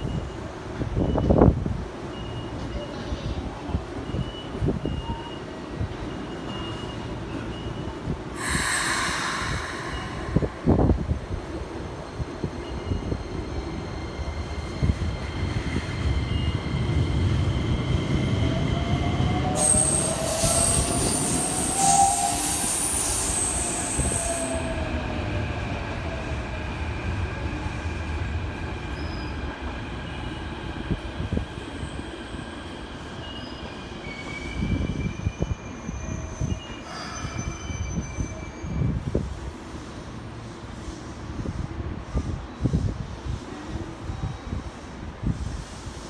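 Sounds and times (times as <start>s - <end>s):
electric train rumbling on track: 0.0s - 46.0s
high squeal: 8.4s - 13.8s, 19.4s - 24.9s.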